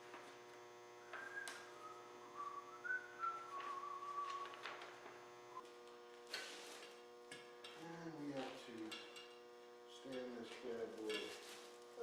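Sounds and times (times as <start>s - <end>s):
person whistling a tune: 1.2s - 4.6s.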